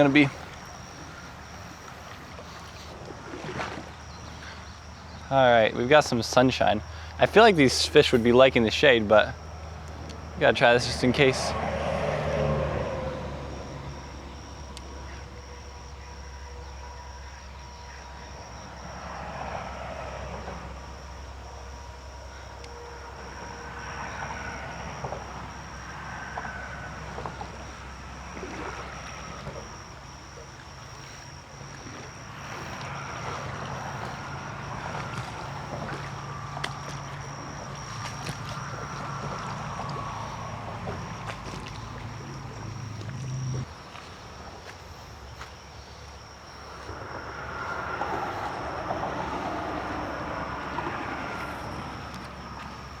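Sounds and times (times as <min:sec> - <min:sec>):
water sloshing around wading person: 0:00.0 - 0:53.0
steady low hum: 0:12.3 - 0:53.0.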